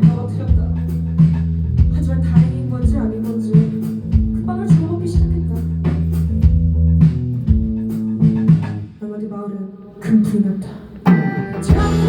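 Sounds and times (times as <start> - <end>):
bass guitar notes: 0.0 - 8.9, 11.1 - 12.0
guitar: 11.0 - 12.0
drum hits: 11.1 - 12.0.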